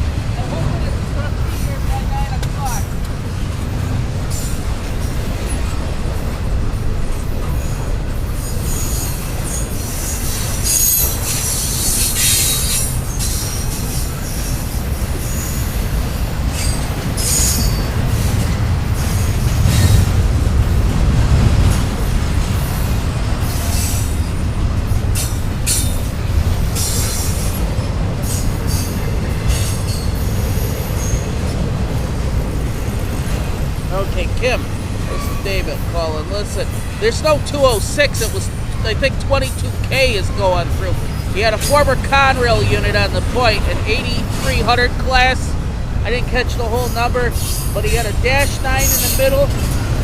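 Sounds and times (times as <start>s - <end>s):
freight train rumbling past: 0.0s - 50.0s
high-pitched wheel squeals: 7.6s - 15.8s, 16.5s - 18.3s.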